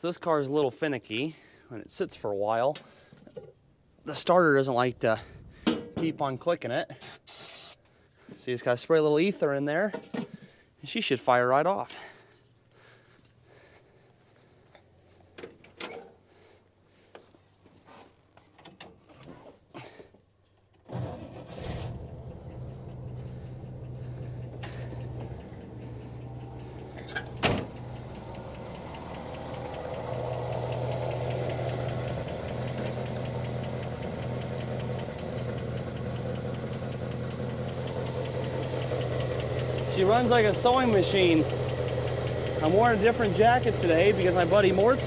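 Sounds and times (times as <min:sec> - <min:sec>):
short hisses and clicks: 0:07.0 - 0:07.8
car engine starting and idling: 0:20.8 - 0:45.0.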